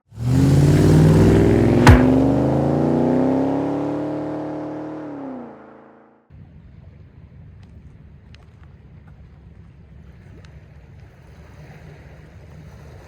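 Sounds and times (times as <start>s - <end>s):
car engine accelerating: 0.1s - 5.8s
sharp hit with falling sweep: 1.8s - 2.5s.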